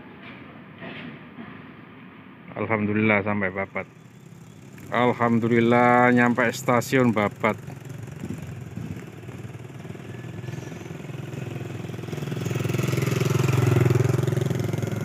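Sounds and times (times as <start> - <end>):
vehicle engine passing by: 4.0 - 15.0.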